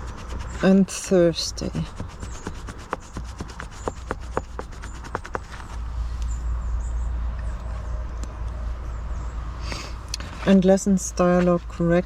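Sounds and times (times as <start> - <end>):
pen scratching on paper: 0.0 - 5.8.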